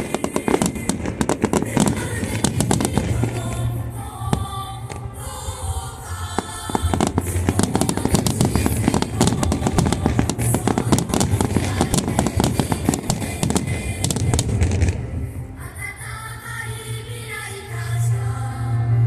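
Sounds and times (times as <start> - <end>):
fireworks bangs and crackles: 0.0 - 5.5, 6.2 - 15.3
music on loudspeakers: 0.0 - 19.0.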